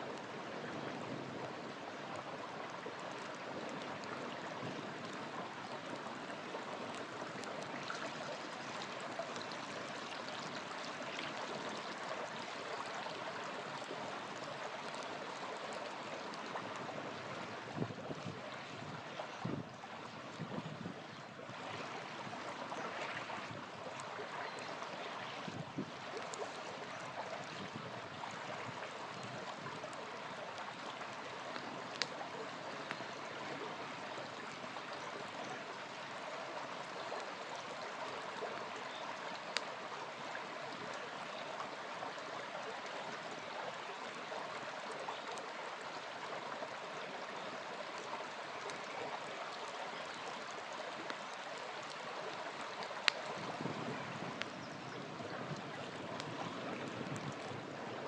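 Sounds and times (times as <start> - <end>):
river flowing: 0.0 - 58.0
campfire popping: 29.1 - 33.4, 51.8 - 54.6.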